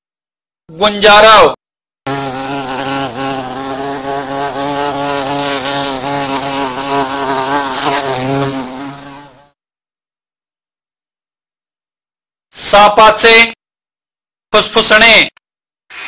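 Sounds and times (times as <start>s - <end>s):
honeybees buzzing: 2.1s - 9.6s.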